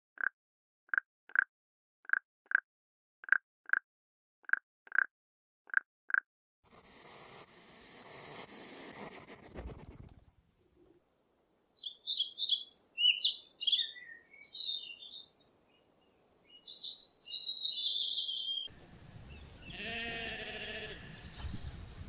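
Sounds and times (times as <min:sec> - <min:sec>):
small bird chirping: 0:11.8 - 0:18.7
livestock bleating: 0:19.6 - 0:21.2.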